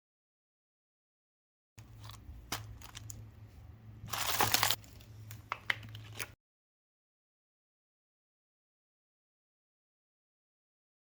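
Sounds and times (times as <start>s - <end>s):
plastic packaging crinkling: 1.8s - 3.2s, 4.0s - 6.4s
low steady hum: 1.8s - 6.4s.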